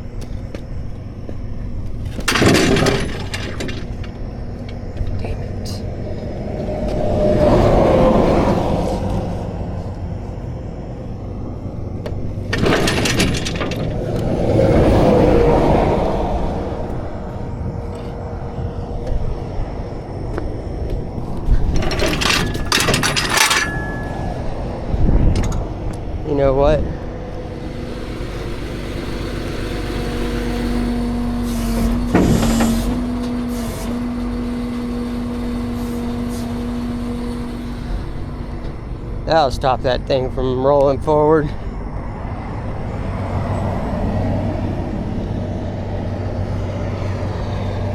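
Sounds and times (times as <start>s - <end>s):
highway traffic passing: 0.0s - 47.9s
steady droning hum: 0.0s - 47.9s
metal clattering: 2.1s - 4.4s, 12.4s - 14.4s, 21.4s - 24.7s.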